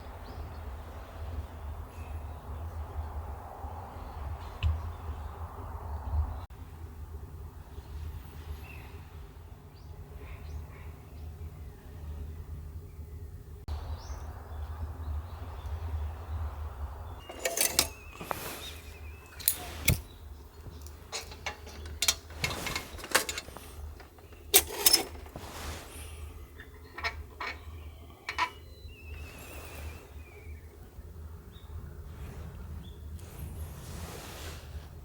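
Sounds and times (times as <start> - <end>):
sharp clicks and clinks: 17.3 - 18.6, 20.7 - 25.4, 26.6 - 28.6.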